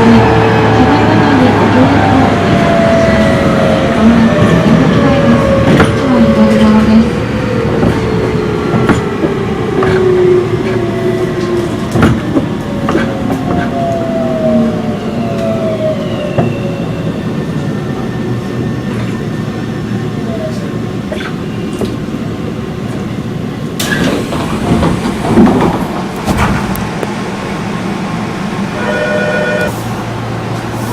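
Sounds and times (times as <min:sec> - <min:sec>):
train inverter whining: 0:00.0 - 0:30.9
wheel and rail running noise: 0:20.5 - 0:30.9
clunks: 0:23.8 - 0:27.2.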